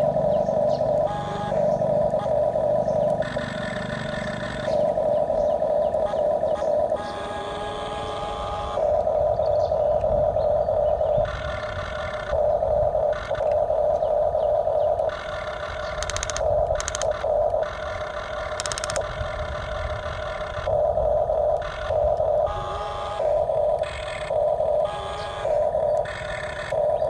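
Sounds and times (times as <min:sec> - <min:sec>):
small electric motors whining: 0:00.0 - 0:27.0
rapid clicking: 0:11.2 - 0:27.0.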